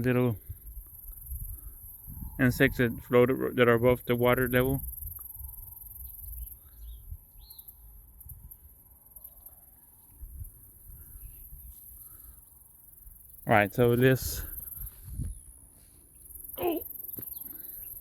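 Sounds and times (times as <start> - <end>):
insect chorus hum: 0.0 - 18.0
bird chirps: 6.0 - 7.8, 16.5 - 18.0.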